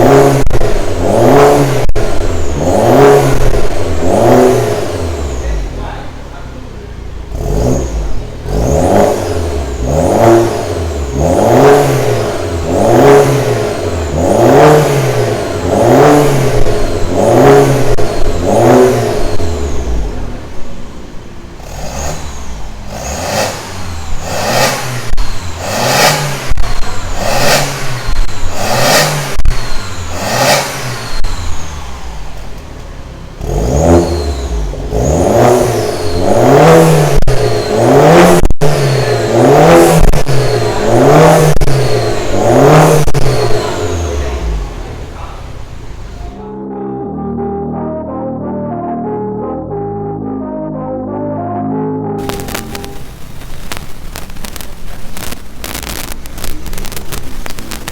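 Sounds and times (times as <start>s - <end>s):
car engine revving: 0.0s - 46.5s, 52.2s - 57.9s
throttle blips: 46.4s - 54.6s.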